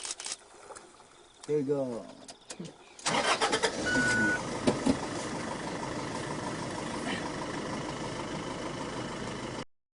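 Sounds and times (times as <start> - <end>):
vehicle engine idling: 3.0 - 9.7.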